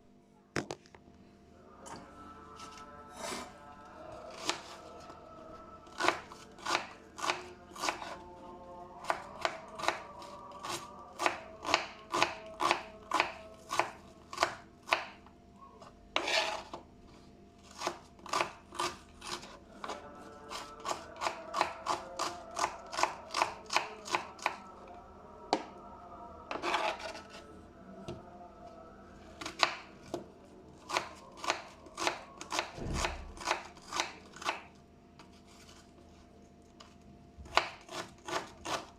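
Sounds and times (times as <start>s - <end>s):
knife chopping on cutting board: 11.2s - 15.2s, 16.2s - 16.8s, 17.7s - 24.6s, 26.5s - 27.2s, 30.9s - 34.7s, 37.4s - 38.9s.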